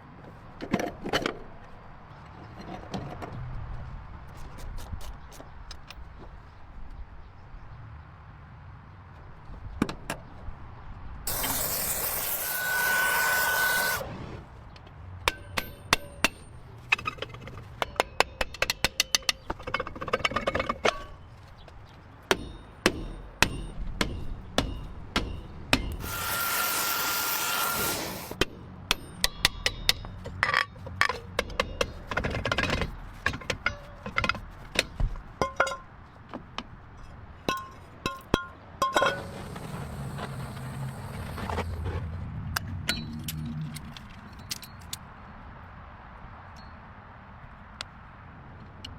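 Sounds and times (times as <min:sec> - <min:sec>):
power tool whining: 0:11.3 - 0:14.2, 0:26.0 - 0:28.4, 0:39.2 - 0:41.7.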